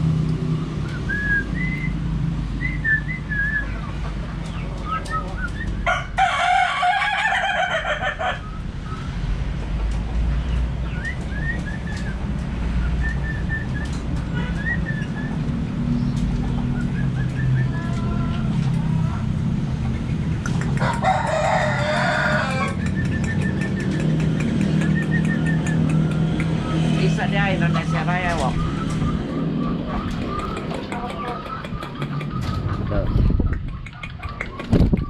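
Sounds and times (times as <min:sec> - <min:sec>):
budgerigars chirping: 0:21.4 - 0:35.0.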